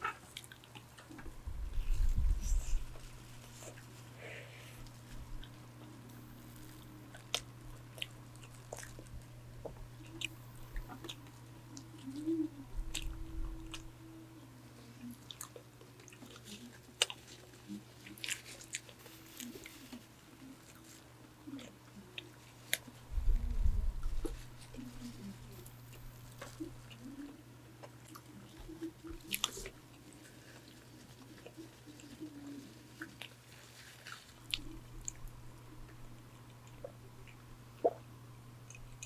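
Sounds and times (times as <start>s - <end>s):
electric fan humming: 0.0s - 39.0s
chewing with wet mouth clicks: 6.6s - 9.1s, 15.0s - 20.9s, 26.4s - 35.3s.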